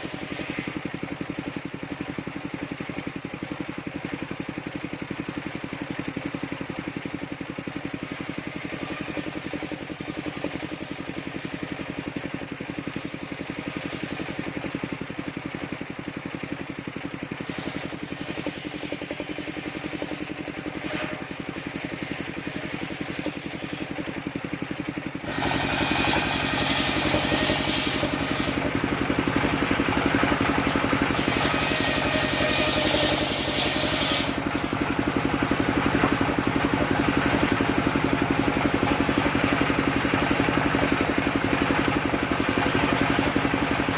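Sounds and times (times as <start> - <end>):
saw blade rasping through wood: 0.0 - 1.1, 7.9 - 15.0, 17.2 - 24.3, 25.2 - 28.8, 30.3 - 36.7
sawmill engine running: 0.0 - 43.9.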